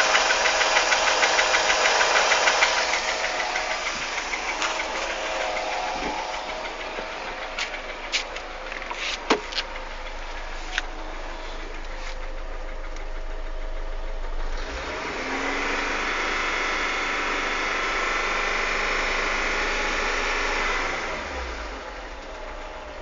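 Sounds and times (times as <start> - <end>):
camshaft knocking: 0.0 - 13.2
car engine revving: 0.0 - 23.0.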